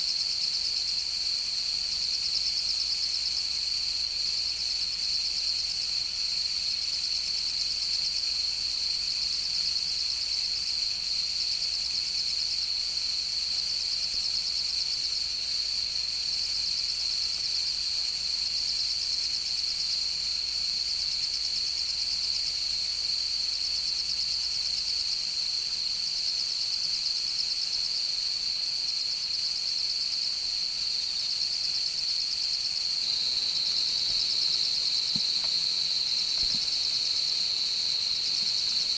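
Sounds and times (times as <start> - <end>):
insect high trill: 32.2 - 38.9
insect thin chirping: 32.2 - 38.9.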